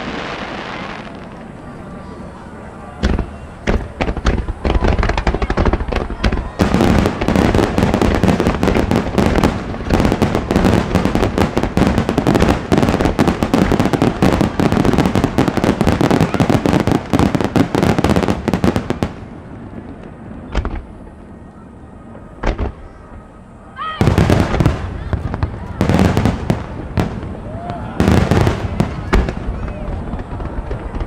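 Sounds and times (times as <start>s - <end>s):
fireworks booms: 0.0s - 1.6s, 3.0s - 21.2s, 22.1s - 23.3s, 24.0s - 31.0s
fireworks bursts and crackling: 0.0s - 2.0s, 3.0s - 23.4s, 24.0s - 31.0s.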